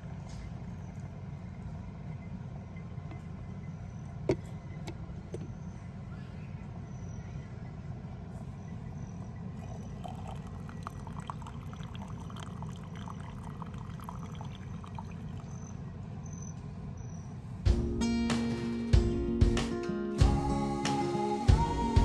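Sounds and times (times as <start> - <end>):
hot water pouring into dripper: 9.7 - 15.6.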